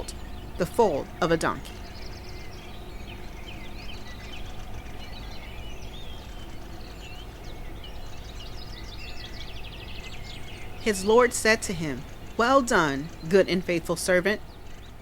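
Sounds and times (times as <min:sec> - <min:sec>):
low background rush: 0:00.0 - 0:15.0
small birds chirping: 0:00.0 - 0:15.0.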